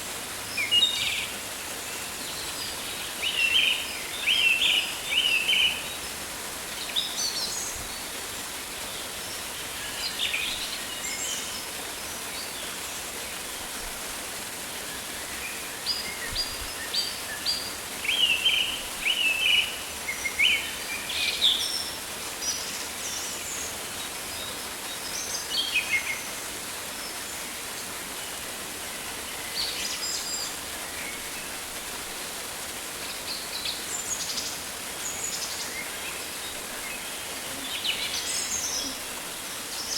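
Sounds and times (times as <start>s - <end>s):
rain hissing: 25.0s - 39.9s.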